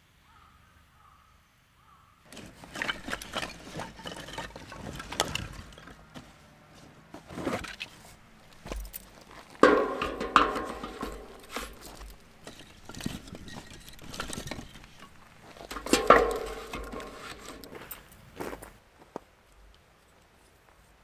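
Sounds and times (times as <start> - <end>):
light taps and clinks: 8.4 - 18.8
metal cookware clanking: 8.7 - 18.2.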